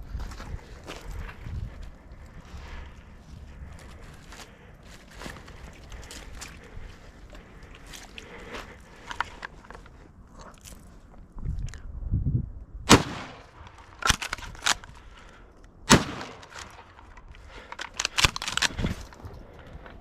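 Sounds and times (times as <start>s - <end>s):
low rumble of wind or handling: 0.0s - 20.0s
shotgun shots: 12.9s - 14.8s, 15.9s - 17.0s.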